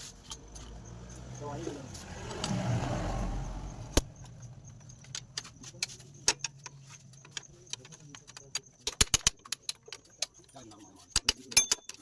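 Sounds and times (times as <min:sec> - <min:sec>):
engine idling with low hum: 0:00.0 - 0:08.9.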